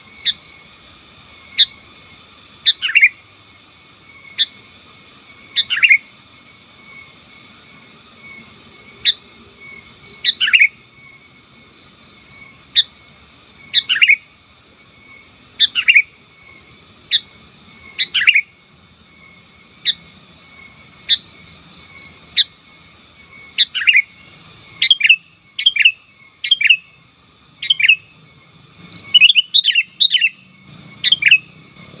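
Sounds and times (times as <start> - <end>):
high insect trill: 0.0 - 32.0
bird calling: 15.6 - 16.2, 17.9 - 18.5, 24.8 - 26.9, 27.6 - 28.1, 29.0 - 31.6.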